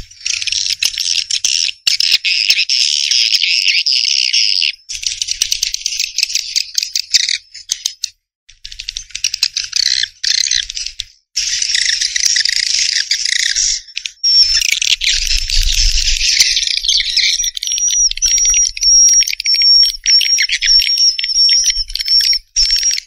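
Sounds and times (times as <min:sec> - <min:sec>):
swiftlet chattering twitters: 0:11.4 - 0:23.0.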